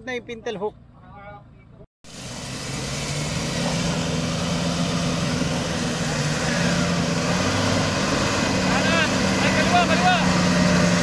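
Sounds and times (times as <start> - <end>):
off-road vehicle engine running: 0.0 - 11.0
wash of noise: 2.0 - 11.0.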